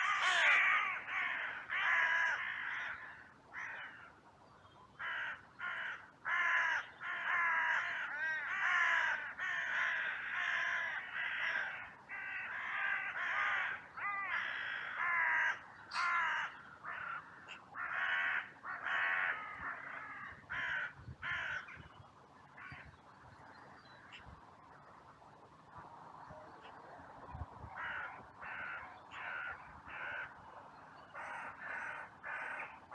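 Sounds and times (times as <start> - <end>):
crows cawing: 0.0 - 4.2, 5.0 - 21.8, 27.8 - 30.4, 31.2 - 32.9.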